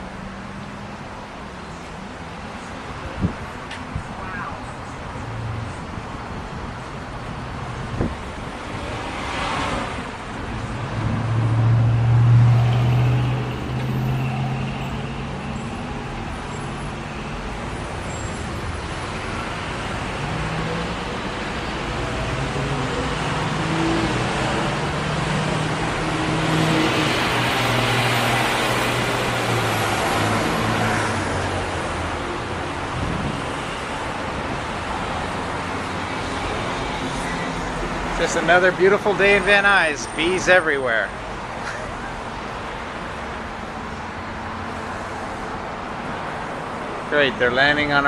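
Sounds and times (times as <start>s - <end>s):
street traffic: 0.0s - 48.0s
vehicle passing: 7.8s - 15.4s.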